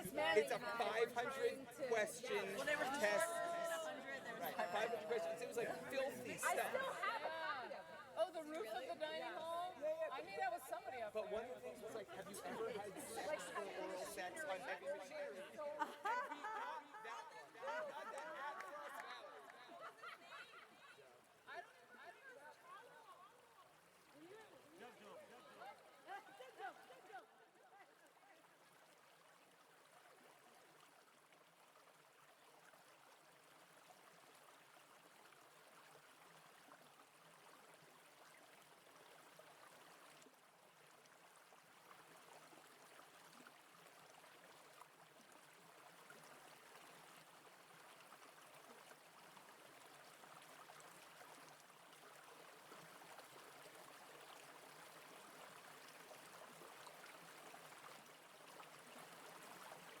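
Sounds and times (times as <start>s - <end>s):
brook running over rocks: 28.5s - 60.0s.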